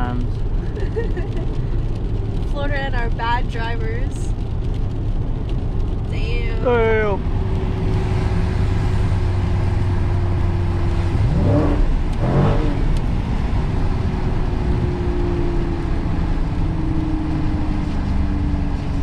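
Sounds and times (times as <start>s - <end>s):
car engine revving: 6.1s - 19.0s.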